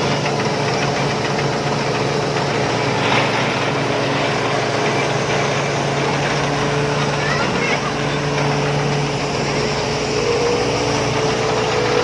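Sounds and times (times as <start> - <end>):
combine harvester engine running: 0.0 - 12.0
rush of noise: 0.0 - 12.0.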